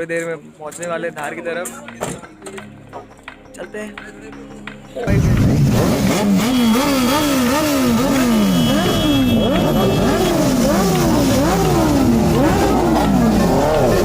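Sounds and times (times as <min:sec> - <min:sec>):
motorcycle engines revving: 0:05.0 - 0:14.0.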